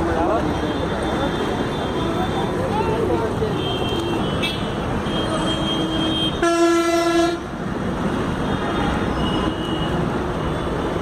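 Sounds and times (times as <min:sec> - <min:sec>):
road traffic noise: 0:00.0 - 0:11.0
vehicle horn: 0:03.6 - 0:07.4.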